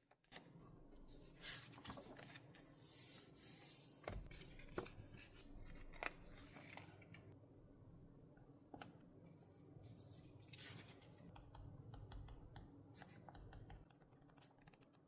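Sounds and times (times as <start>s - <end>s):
paper rustling: 1.4s - 7.2s.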